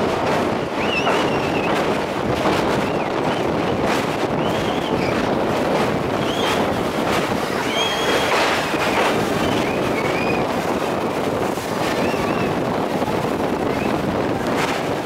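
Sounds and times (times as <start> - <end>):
train rushing over bridge: 0.0 - 15.0
wind buffeting microphone: 0.0 - 15.0
short high squeals: 7.5 - 8.3.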